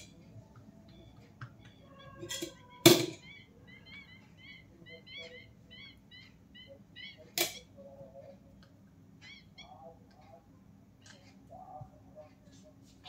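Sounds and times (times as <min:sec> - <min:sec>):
bird chirping: 0:00.0 - 0:08.4, 0:09.1 - 0:10.4.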